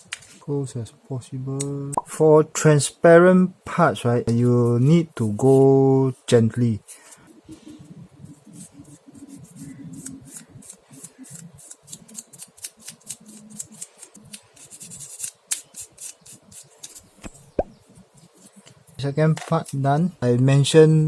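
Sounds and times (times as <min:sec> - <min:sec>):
sandpaper rubbing on plastic: 0:06.9 - 0:18.7.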